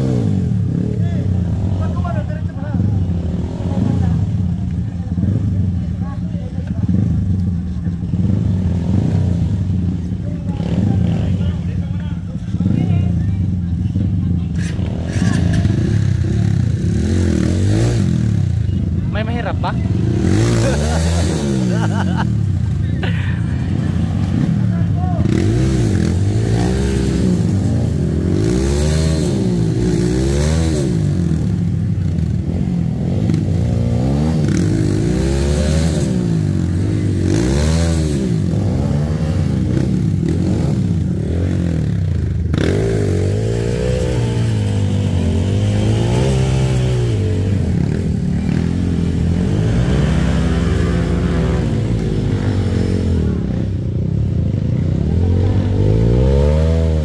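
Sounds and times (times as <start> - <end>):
dirt bike engine revving: 0.0 - 4.5, 14.0 - 57.0.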